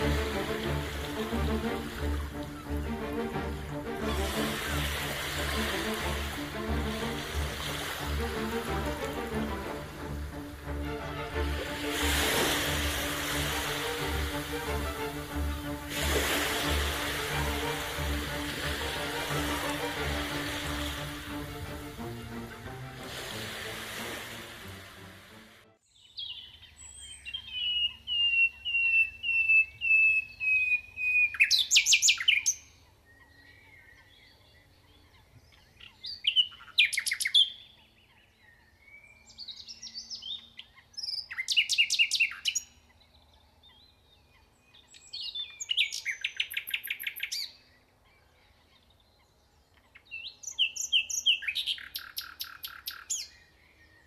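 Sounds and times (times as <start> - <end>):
songbird singing with trill: 25.8 - 54.0.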